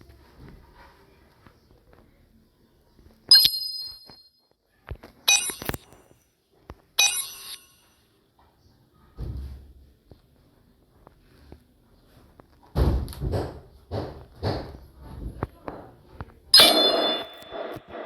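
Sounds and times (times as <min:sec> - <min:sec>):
sharp metallic clinks: 0:03.3 - 0:04.4, 0:05.3 - 0:06.0, 0:07.0 - 0:07.9, 0:16.6 - 0:18.0.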